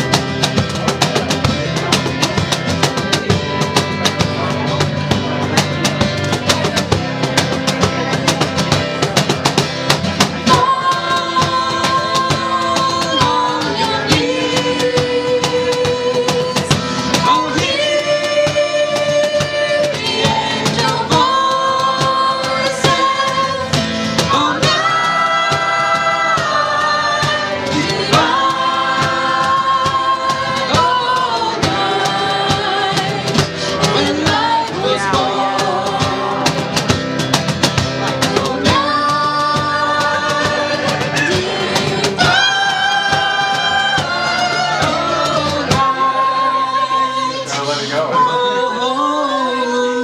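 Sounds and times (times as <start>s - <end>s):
hand percussion: 0.0s - 48.0s
acoustic band playing: 0.0s - 50.0s
voices singing long notes: 10.4s - 36.9s, 38.0s - 50.0s.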